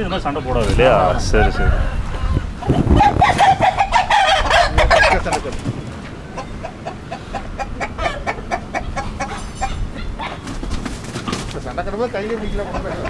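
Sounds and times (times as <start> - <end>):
chicken clucking: 0.0 - 13.0
rooster crowing: 0.8 - 5.2.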